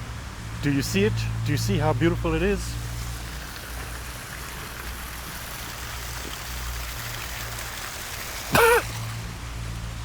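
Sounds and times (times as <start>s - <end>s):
water spilling into a stream: 2.7s - 9.8s.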